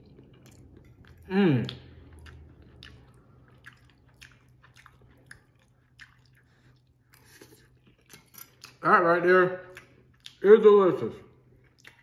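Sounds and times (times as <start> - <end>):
faint chewing: 0.0 - 8.8, 11.3 - 12.0.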